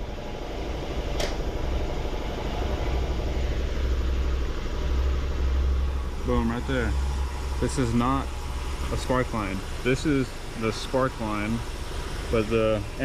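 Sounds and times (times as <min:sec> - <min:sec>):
car engine idling with misfire: 0:00.0 - 0:13.0
sharp click: 0:01.2 - 0:01.4.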